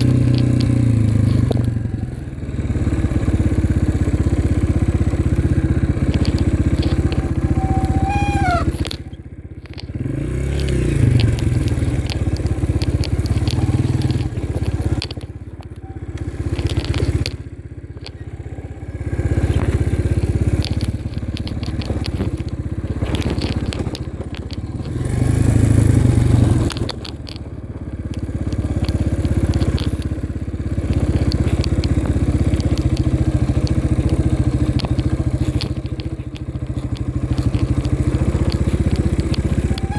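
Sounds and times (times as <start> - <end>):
dirt bike engine revving: 2.4 - 9.2, 9.9 - 17.4, 18.1 - 27.6.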